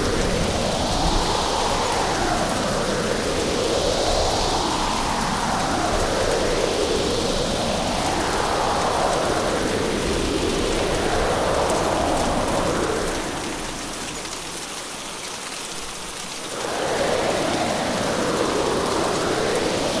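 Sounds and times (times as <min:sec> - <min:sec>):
gusting wind: 0:00.0 - 0:14.5, 0:16.5 - 0:20.0
heavy rain: 0:00.0 - 0:20.0.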